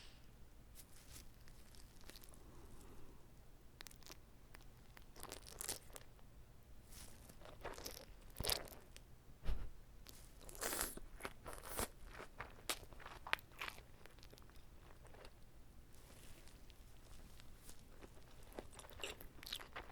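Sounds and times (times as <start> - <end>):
biting and chewing food: 1.3 - 2.4, 3.8 - 6.2, 7.0 - 9.0, 10.0 - 15.4, 16.0 - 19.9
low thump: 9.4 - 9.8.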